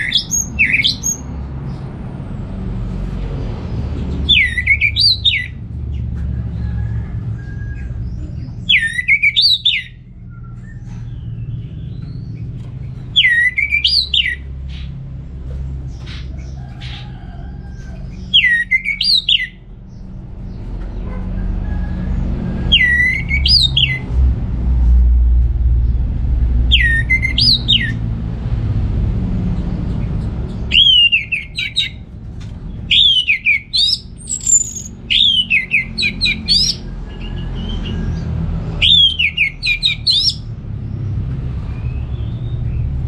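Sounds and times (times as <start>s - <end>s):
low rumble: 19.6s - 35.1s.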